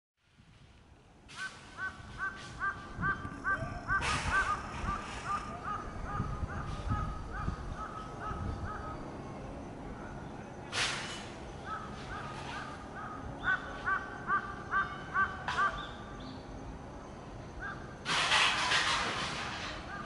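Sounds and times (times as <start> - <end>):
bird calling short notes: 1.4 - 9.0.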